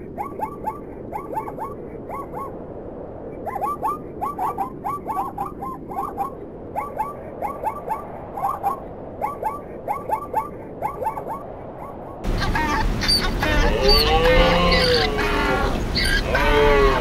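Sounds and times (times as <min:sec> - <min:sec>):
steady low background noise: 0:00.0 - 0:17.0
zebra barking: 0:12.2 - 0:17.0.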